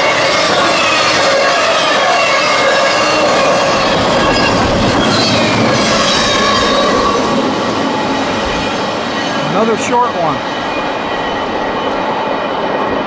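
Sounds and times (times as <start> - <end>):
wheel squeal: 0.0 - 7.4
train wheels rumbling on rails: 0.0 - 13.0.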